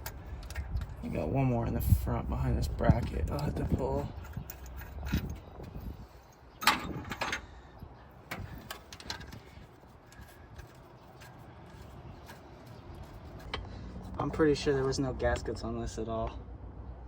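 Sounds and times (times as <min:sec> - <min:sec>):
metal clinks and knocks: 0:03.0 - 0:07.5.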